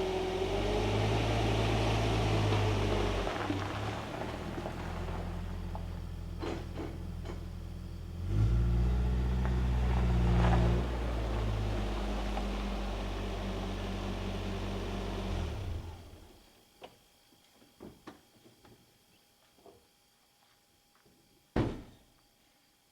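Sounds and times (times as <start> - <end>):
pickup engine idling and revving: 0.0 - 16.3.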